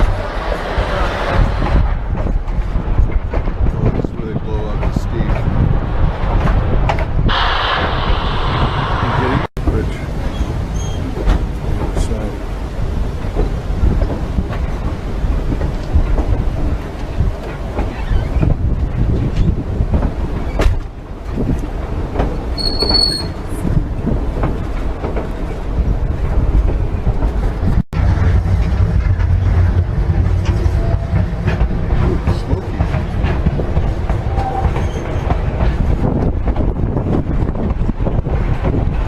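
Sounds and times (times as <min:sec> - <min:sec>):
train wheels clattering on rails: 0:00.0 - 0:39.0
high wheel squeal: 0:10.3 - 0:11.1, 0:22.6 - 0:23.4.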